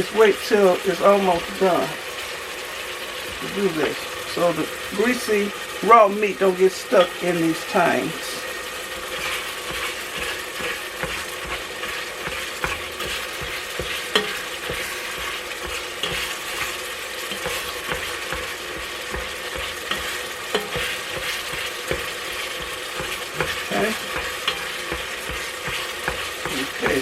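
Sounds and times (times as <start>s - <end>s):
ground beef sizzling: 0.0s - 27.0s
meat chopper scraping pot: 8.4s - 27.0s.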